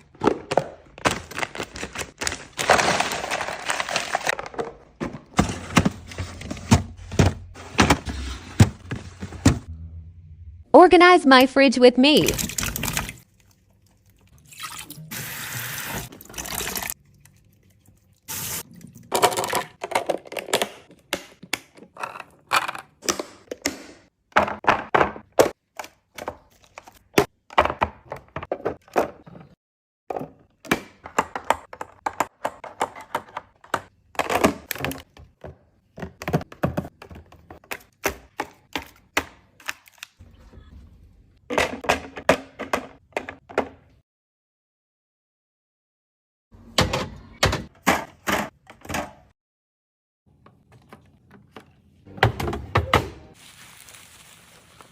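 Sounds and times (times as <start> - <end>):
containers clacking and thunking: 0.0 - 9.7, 19.0 - 39.4, 41.4 - 44.0.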